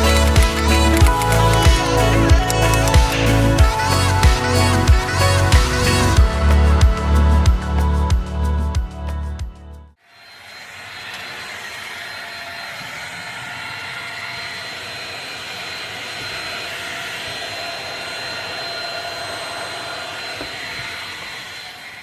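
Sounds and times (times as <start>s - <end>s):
electric fan running: 0.0s - 8.7s.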